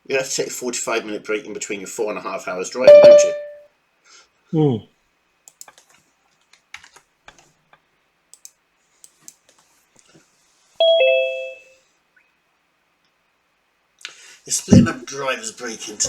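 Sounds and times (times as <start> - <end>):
two-note electronic chime: 2.9 - 3.6, 10.8 - 11.7
keyboard and mouse clicks: 5.5 - 7.5, 8.3 - 9.6.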